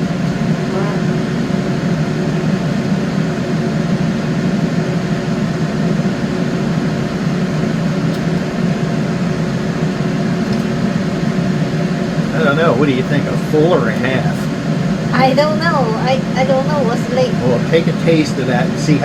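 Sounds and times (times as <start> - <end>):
motor or fan humming: 0.0 - 19.0.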